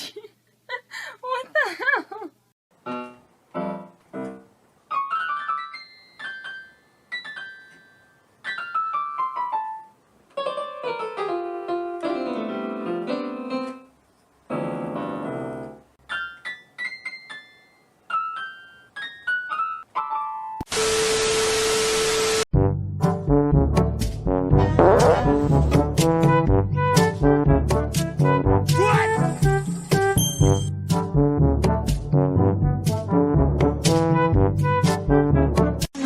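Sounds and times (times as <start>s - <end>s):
piano notes: 2.8s - 20.6s
loud hiss with steady tone: 20.7s - 22.4s.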